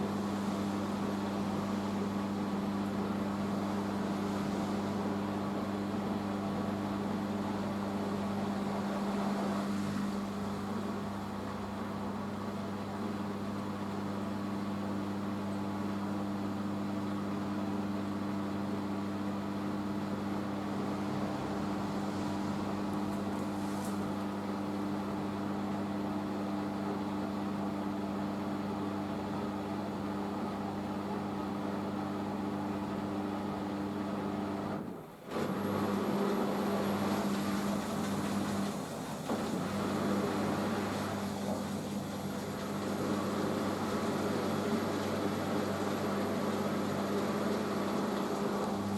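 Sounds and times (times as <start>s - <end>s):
washing machine drum spinning: 35.4s - 48.9s.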